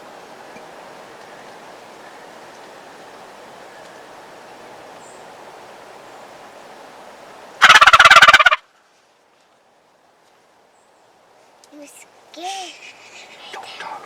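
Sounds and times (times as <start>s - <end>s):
faint steady hiss: 0.0s - 14.0s
turkey gobble call: 7.6s - 8.6s.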